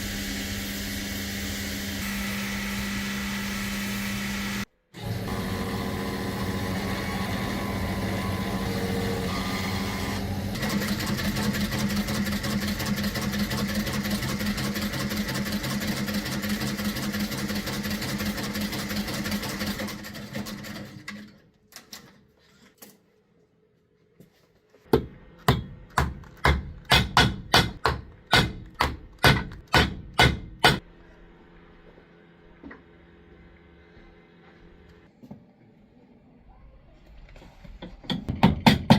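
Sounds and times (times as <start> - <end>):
machine motor pulsing: 0.0 - 16.6.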